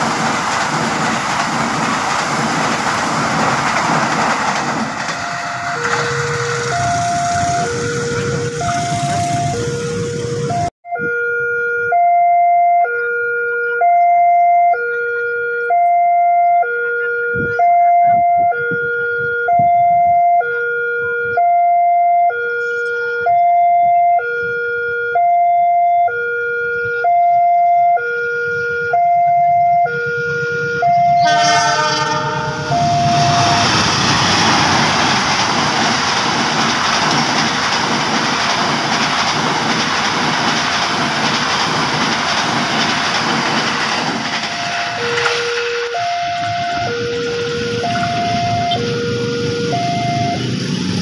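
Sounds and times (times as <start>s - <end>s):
two-tone electronic siren: 4.8s - 36.8s, 44.0s - 51.0s
noisy rumble: 31.0s - 51.0s.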